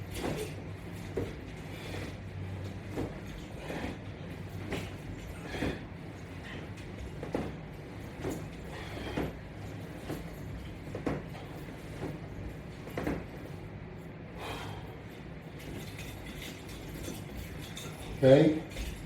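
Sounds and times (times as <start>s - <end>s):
creaks and rustles of straps: 0.0s - 19.0s
steady low hum: 0.0s - 19.0s.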